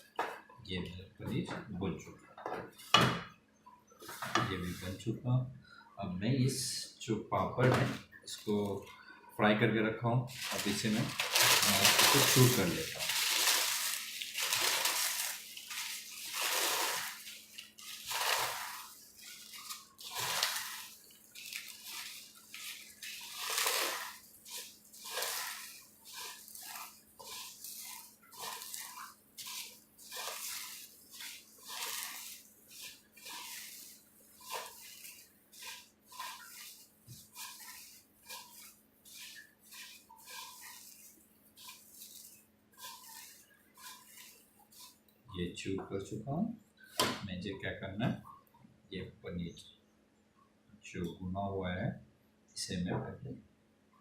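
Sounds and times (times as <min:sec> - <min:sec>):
crisp papad crunching: 0:10.3 - 0:45.0.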